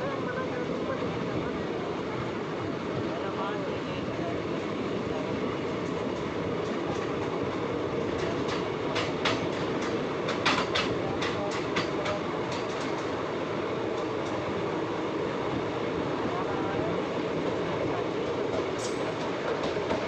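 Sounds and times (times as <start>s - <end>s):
train rumbling: 0.0s - 20.0s
sharp train clacks: 5.7s - 14.6s, 18.2s - 20.0s.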